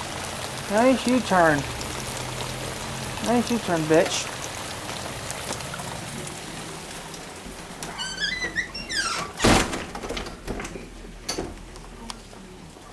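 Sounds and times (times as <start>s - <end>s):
rain hiss: 0.0s - 8.3s
sliding door squeaking: 7.6s - 10.7s
door shutting thunk: 7.7s - 11.7s.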